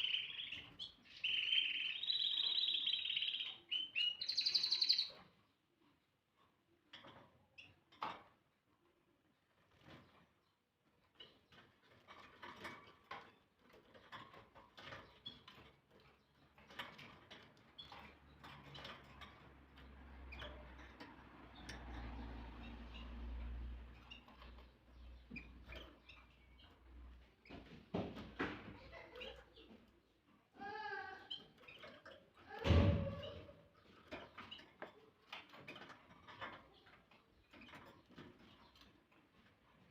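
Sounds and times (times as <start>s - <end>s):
canary chirps: 0.0s - 5.4s, 28.8s - 39.9s
canary chirping: 0.0s - 5.6s, 11.1s - 27.6s, 28.8s - 39.9s.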